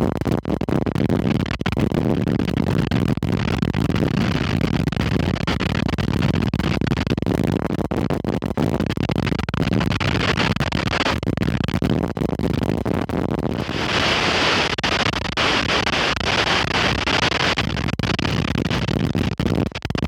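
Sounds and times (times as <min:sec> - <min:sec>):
strong wind on microphone: 0:12.4 - 0:19.8.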